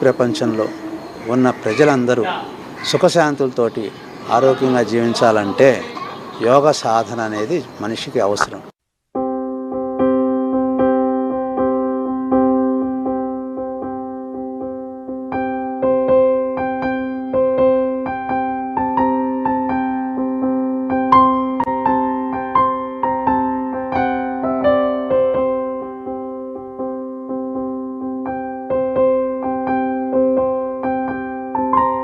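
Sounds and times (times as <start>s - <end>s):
keyboard held chord: 0.0s - 2.6s
higher keyboard melody: 0.0s - 8.6s, 9.2s - 32.0s.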